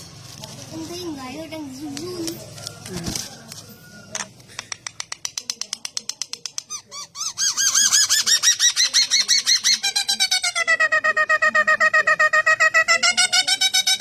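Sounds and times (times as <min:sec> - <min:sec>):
songbird singing: 0:06.6 - 0:14.0.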